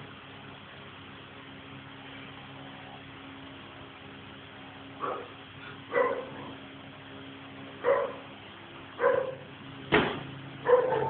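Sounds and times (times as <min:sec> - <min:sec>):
dog barking: 0:05.0 - 0:06.6, 0:07.8 - 0:08.3, 0:09.0 - 0:09.5, 0:10.6 - 0:11.0
sharp slap or thud: 0:09.9 - 0:10.3.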